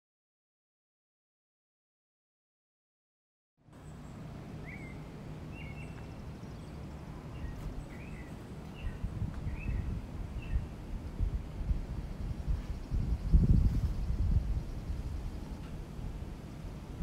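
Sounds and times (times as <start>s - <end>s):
small bird chirping: 3.8s - 10.8s, 12.1s - 15.8s.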